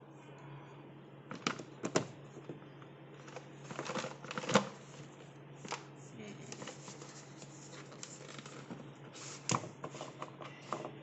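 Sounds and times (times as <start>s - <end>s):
steady low hum: 0.0s - 11.0s
packaging clicks and rustling: 3.2s - 4.8s, 7.8s - 8.8s.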